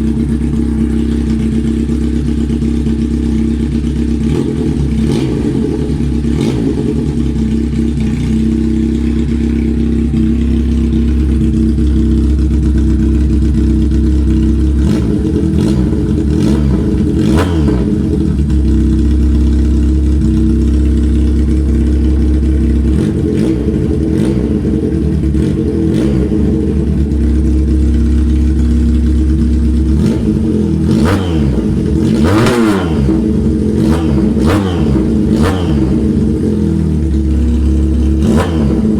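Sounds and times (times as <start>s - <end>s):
engine idling and revving: 0.0s - 38.9s.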